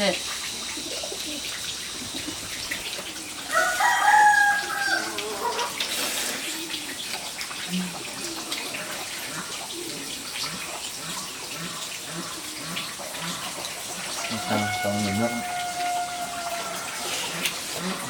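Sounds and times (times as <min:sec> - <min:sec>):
rooster crowing: 0:03.5 - 0:05.8, 0:14.2 - 0:18.0.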